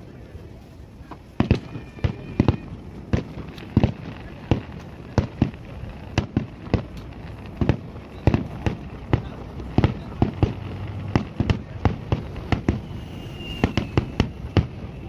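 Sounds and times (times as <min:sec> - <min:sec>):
fireworks banging: 0:01.0 - 0:15.0.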